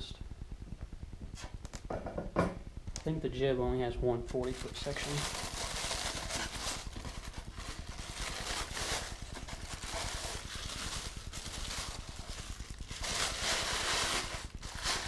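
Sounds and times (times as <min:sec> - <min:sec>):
packaging rustling and scraping: 0:04.4 - 0:15.0.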